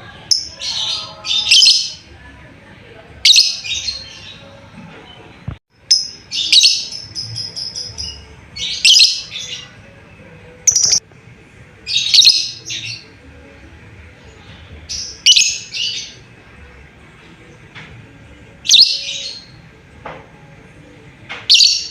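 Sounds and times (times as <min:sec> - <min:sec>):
lovebird shrill chirping: 0:10.7 - 0:11.0.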